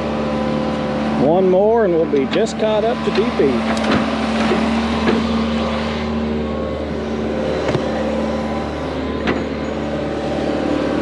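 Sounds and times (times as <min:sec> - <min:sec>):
diesel engine running: 0:00.0 - 0:11.0
short knocks: 0:07.6 - 0:08.0.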